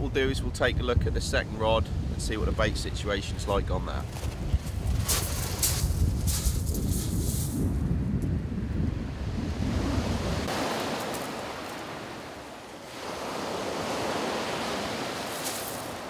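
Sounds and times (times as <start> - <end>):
wind buffeting microphone: 0.0 - 12.2
surf on shingle beach: 2.0 - 7.7, 8.8 - 16.0.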